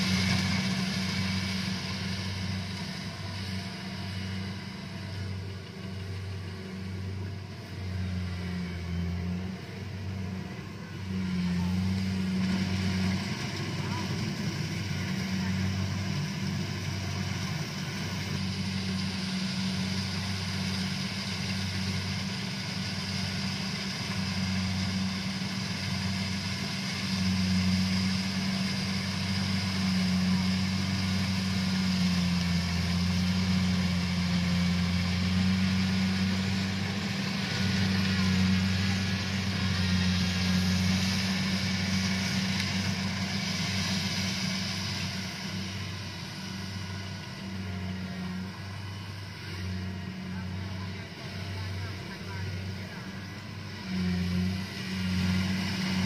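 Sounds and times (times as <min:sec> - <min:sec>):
harvester engine humming: 0:00.0 - 0:56.0.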